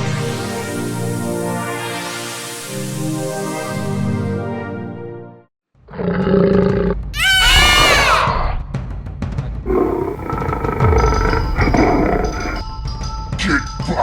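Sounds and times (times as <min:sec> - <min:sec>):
cartoon dragon roar: 0:09.7 - 0:12.6.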